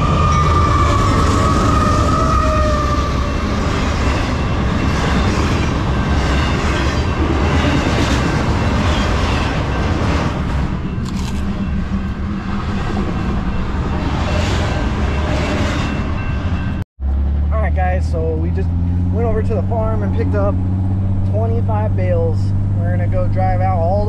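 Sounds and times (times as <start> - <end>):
train passing: 0.0 - 24.0.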